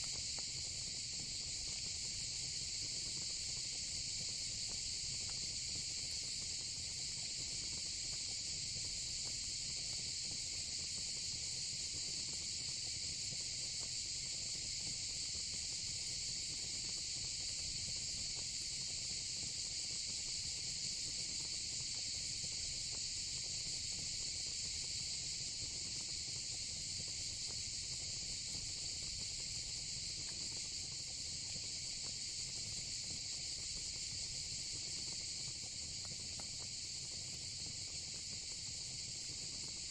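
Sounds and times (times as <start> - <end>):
crickets and cicadas trilling: 18.0 - 39.9.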